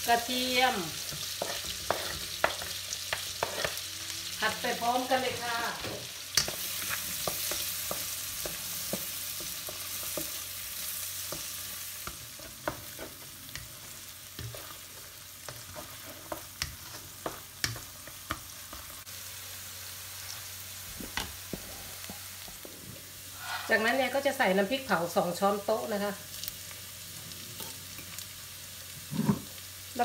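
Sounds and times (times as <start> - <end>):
shallots and garlic sizzling: 0.0 - 30.0
spatula scraping a pan: 1.0 - 3.9, 4.8 - 18.9, 23.3 - 24.0.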